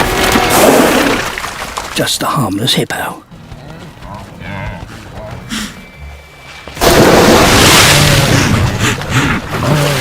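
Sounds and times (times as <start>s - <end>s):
loud water splash: 6.8s - 8.8s
churning water: 6.8s - 10.0s.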